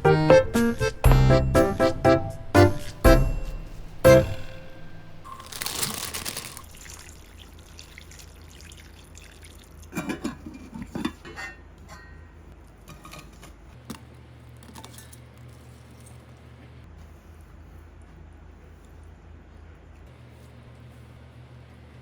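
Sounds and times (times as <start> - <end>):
liquid pouring: 5.3 - 10.0.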